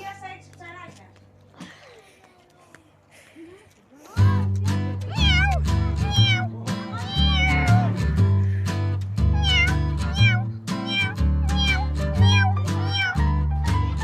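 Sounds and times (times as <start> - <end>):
music with steady bass beat: 4.2 - 14.0
cat meowing: 5.1 - 8.0, 9.3 - 14.0.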